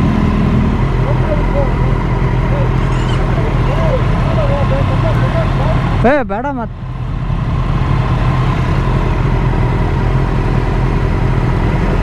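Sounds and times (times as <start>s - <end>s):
motorcycle engine running: 0.0s - 6.1s.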